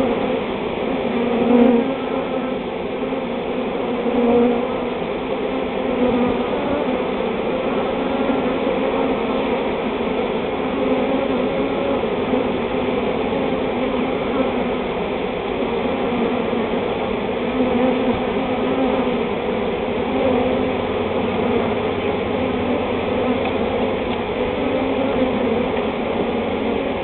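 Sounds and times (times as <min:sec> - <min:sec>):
bee swarm buzzing: 0:00.0 - 0:27.0.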